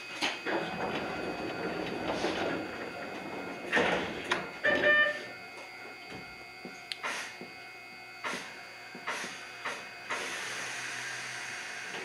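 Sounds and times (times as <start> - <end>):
faint steady whine: 0.0 - 12.0
beeps: 1.2 - 6.8
air hissing: 7.0 - 7.4, 8.2 - 12.0.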